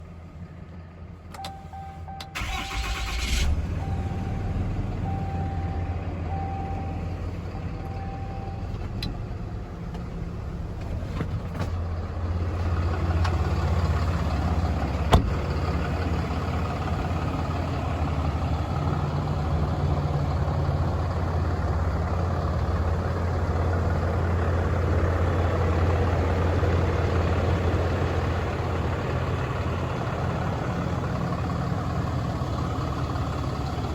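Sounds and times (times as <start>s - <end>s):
diesel engine starting and idling: 0.0s - 33.9s
dashboard warning chime beeping: 1.4s - 2.8s, 3.8s - 8.8s.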